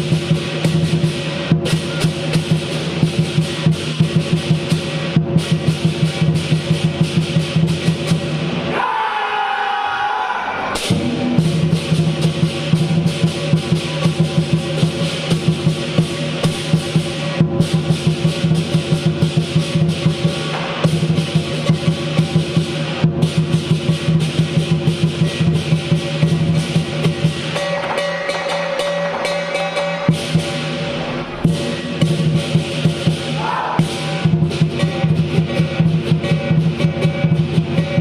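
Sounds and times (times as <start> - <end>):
cymbals clashing: 0.0 - 8.8, 10.7 - 38.0
large drum beating fast: 10.8 - 27.6, 31.3 - 38.0.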